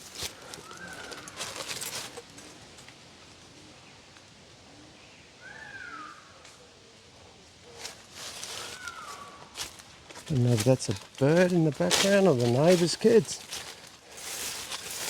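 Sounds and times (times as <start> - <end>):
footsteps through undergrowth: 0.0 - 2.6, 7.7 - 15.0.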